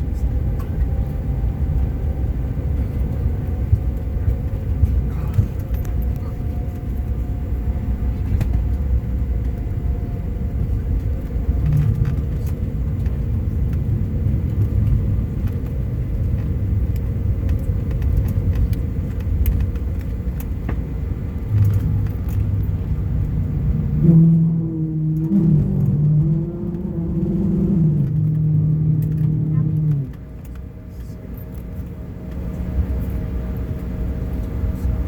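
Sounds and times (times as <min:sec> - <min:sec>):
jet engine and wheels rumble: 0:00.0 - 0:35.0
low pitched tone: 0:21.4 - 0:31.2.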